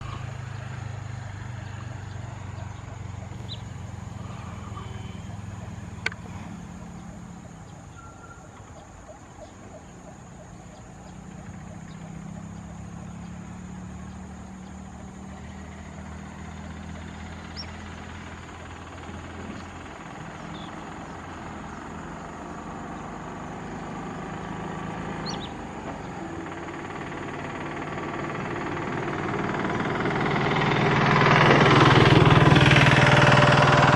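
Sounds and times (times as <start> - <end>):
faint high bird calls: 0.0 - 22.3
low engine hum: 0.0 - 33.9.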